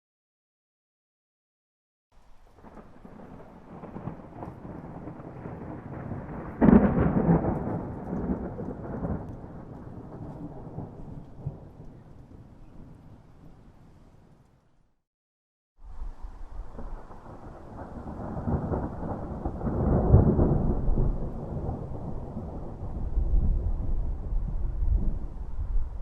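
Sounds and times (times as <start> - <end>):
thunder rumbling: 2.2 - 14.5, 15.9 - 26.0
loud thunder peal: 2.6 - 13.0, 16.6 - 26.0.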